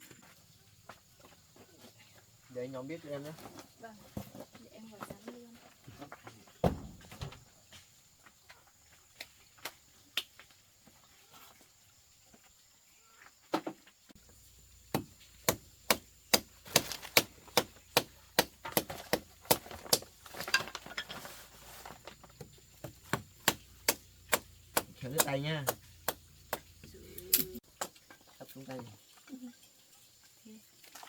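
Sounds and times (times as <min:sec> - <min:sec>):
knife chopping roots: 0:14.9 - 0:20.3, 0:22.8 - 0:26.9.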